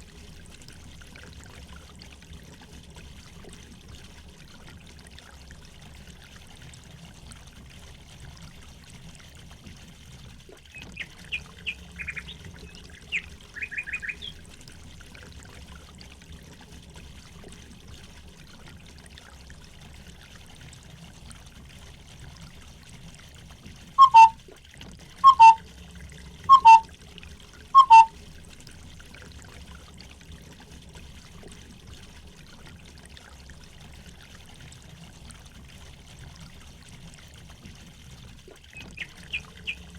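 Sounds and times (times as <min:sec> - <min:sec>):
trickling water: 0:00.0 - 0:39.9
bird high chirps: 0:13.0 - 0:14.3, 0:24.0 - 0:24.4, 0:25.2 - 0:25.6, 0:26.5 - 0:26.8, 0:27.8 - 0:28.1
loud two-note bird calls: 0:24.0 - 0:24.4, 0:25.2 - 0:25.6, 0:26.5 - 0:26.8, 0:27.8 - 0:28.1.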